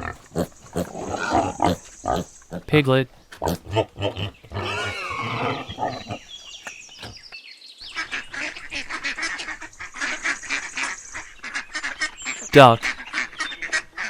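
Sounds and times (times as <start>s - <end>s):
piglets squealing and grunting: 0.0s - 2.8s, 3.4s - 6.3s.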